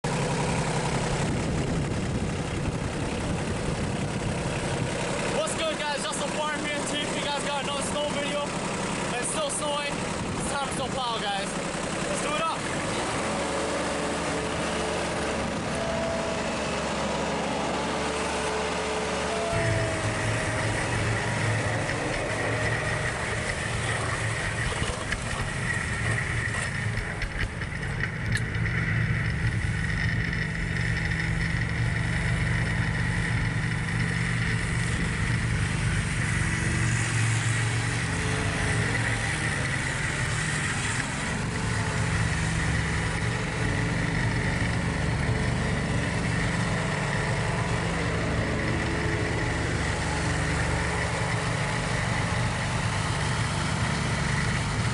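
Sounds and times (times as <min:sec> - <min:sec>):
tractor diesel engine running: 0:00.0 - 0:54.9
steady high whine: 0:18.7 - 0:54.9.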